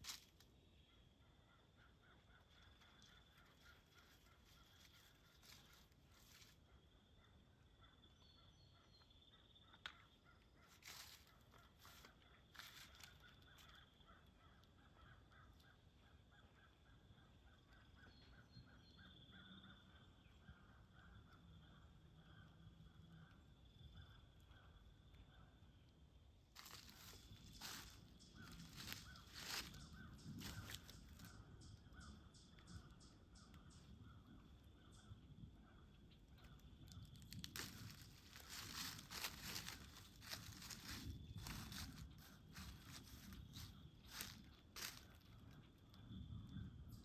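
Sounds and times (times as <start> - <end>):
faint rapid pulsing chirr: 26.6 - 36.0, 37.6 - 45.6.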